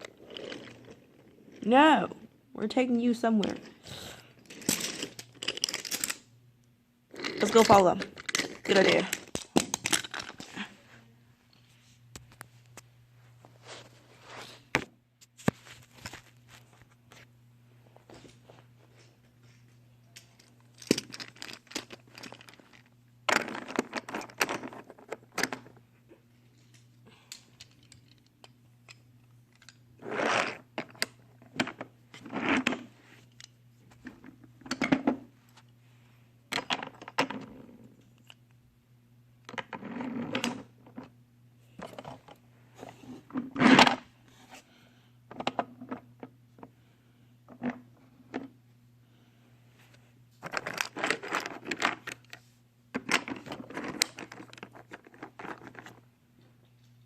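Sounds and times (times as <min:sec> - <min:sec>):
low electrical hum: 0:00.0 - 0:57.0
toy trains clicking and clattering: 0:04.4 - 0:06.2.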